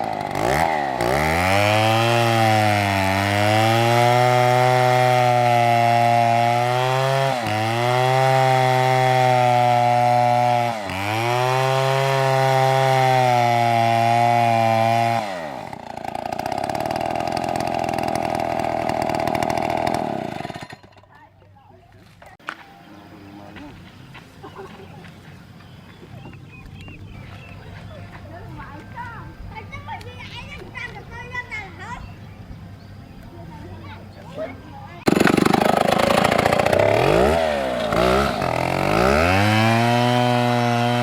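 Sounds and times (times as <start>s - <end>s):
chainsaw cutting wood: 0.0s - 21.2s, 35.0s - 41.0s.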